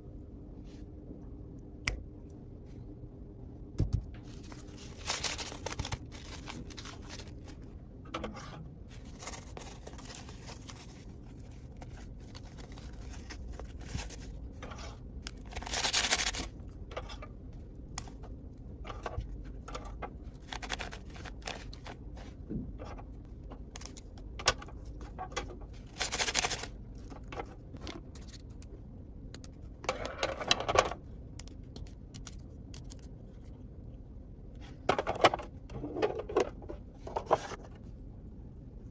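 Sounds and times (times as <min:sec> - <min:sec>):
packaging rustling and tearing: 0:04.3 - 0:07.7, 0:08.9 - 0:14.4, 0:15.2 - 0:16.6, 0:20.4 - 0:22.0, 0:25.8 - 0:26.8.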